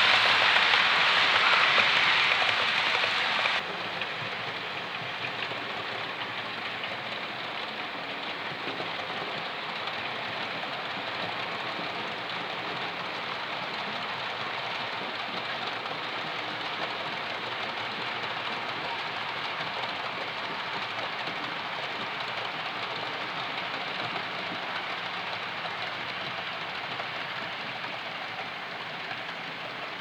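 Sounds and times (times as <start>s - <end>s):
loud hiss: 0.0s - 3.6s
model train running on track: 0.0s - 30.0s.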